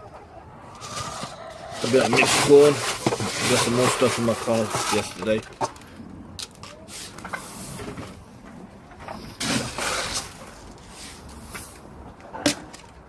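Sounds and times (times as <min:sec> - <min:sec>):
corn feed rustling and scattering: 0:01.7 - 0:05.7, 0:09.2 - 0:11.9.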